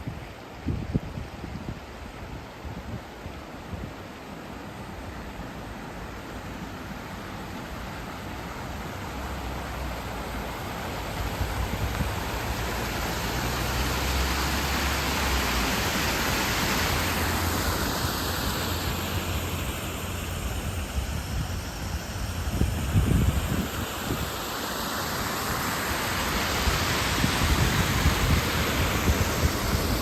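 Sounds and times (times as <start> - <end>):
vehicle passing on road: 9.2 - 20.7.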